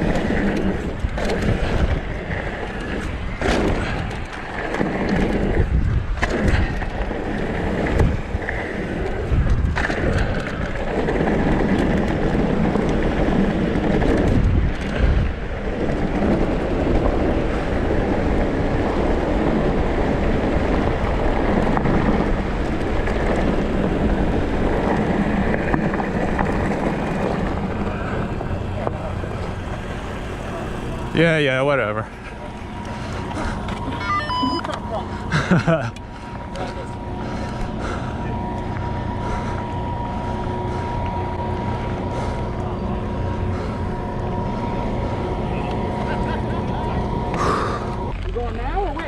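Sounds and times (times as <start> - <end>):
bike thumps and rattles: 0.0 - 8.3
wind rushing over microphone: 0.0 - 48.2
tyres rumbling over dirt: 0.0 - 49.0.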